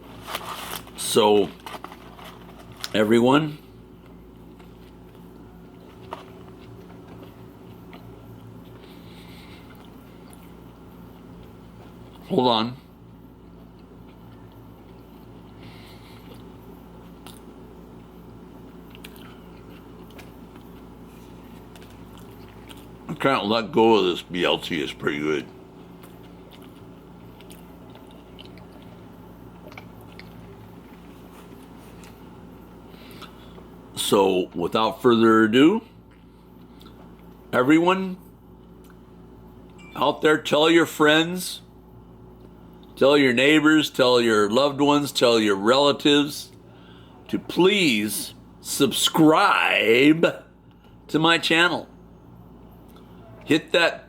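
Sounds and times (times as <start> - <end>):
low electrical hum: 0.0 - 54.0
chewing and biting: 4.0 - 12.3, 13.4 - 23.2, 25.5 - 33.4.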